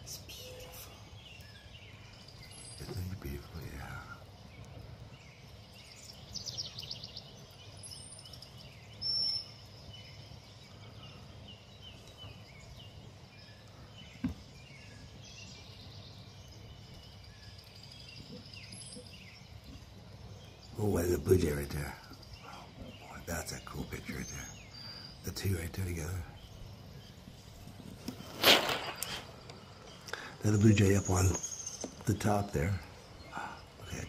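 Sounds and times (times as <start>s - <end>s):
outdoor background: 0.0s - 34.0s
songbirds calling and singing: 0.0s - 34.0s
loud rapid bird trill: 28.0s - 34.0s.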